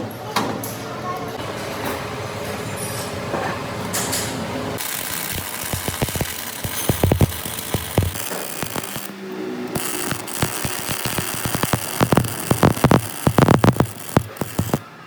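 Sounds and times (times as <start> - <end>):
sharp metallic knocks and clicks: 4.8 - 9.0
machine running: 4.8 - 15.0.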